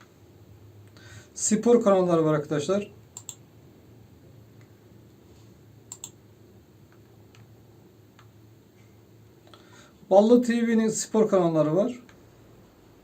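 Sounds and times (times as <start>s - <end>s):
low steady hum: 0.0s - 13.0s
faint sharp clicks: 3.2s - 3.4s, 5.9s - 6.2s.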